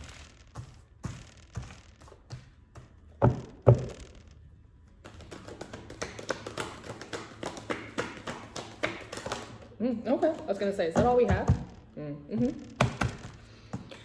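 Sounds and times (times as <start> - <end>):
deck of cards shuffling: 4.9 - 11.8
cards tapping on table: 5.0 - 11.8, 12.8 - 13.9.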